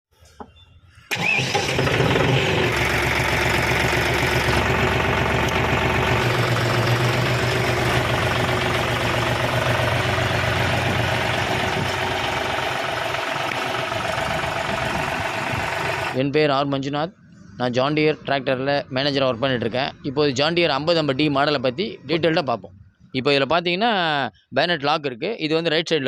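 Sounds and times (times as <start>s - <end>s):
tractor diesel engine idling: 1.1s - 16.2s.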